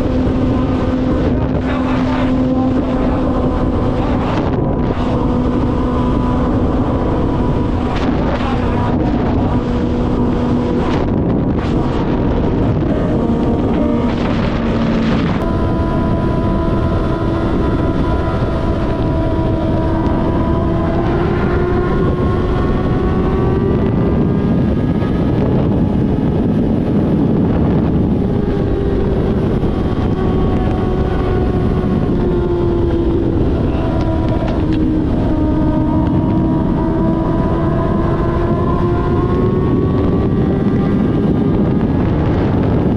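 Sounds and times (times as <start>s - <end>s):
motorcycle engine cruising: 0.0s - 42.9s
wind noise on microphone: 0.0s - 42.9s.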